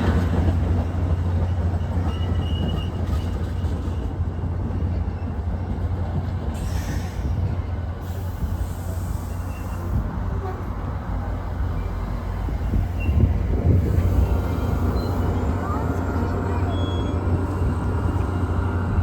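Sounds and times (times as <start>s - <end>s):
train rumbling past: 0.0s - 19.0s
faint high squeal: 8.8s - 10.0s, 14.7s - 18.2s.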